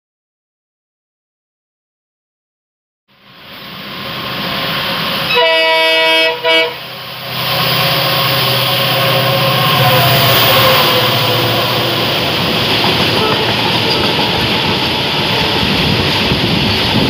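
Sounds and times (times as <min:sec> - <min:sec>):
freight train passing: 0:03.1 - 0:17.0
moving train running noise: 0:03.1 - 0:17.0
train horn blasts: 0:05.2 - 0:15.7.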